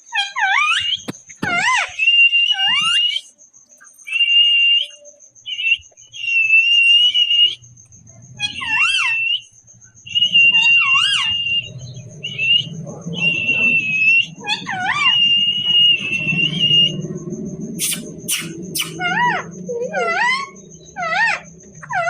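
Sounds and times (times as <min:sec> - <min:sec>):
parrot whistling calls: 0:04.0 - 0:07.6, 0:08.4 - 0:17.1, 0:17.7 - 0:22.0.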